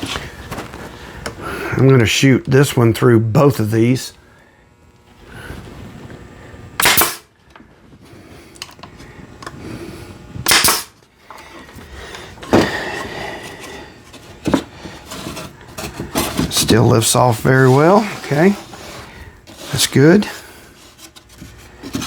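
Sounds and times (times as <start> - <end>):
nail gun firing into wood: 6.8 - 7.3, 10.4 - 11.0.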